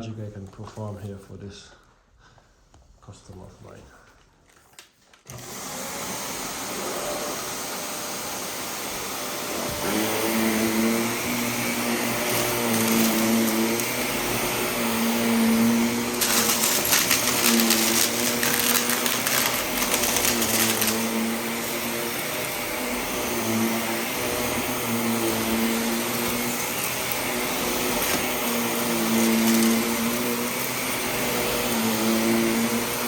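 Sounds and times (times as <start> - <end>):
vacuum cleaner running on carpet: 5.3 - 33.0.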